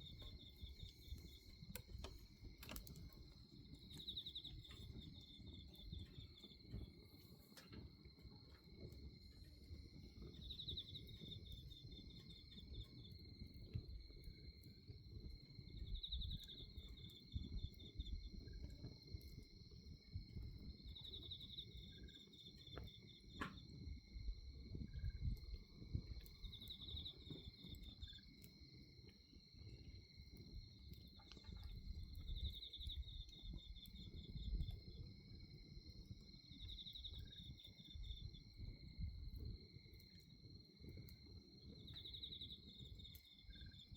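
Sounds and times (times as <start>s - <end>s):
insect pulsed chirping: 0.0s - 6.7s, 20.1s - 40.6s, 41.5s - 43.9s
crickets trilling: 0.0s - 43.9s
fire crackles and pops: 0.0s - 43.9s.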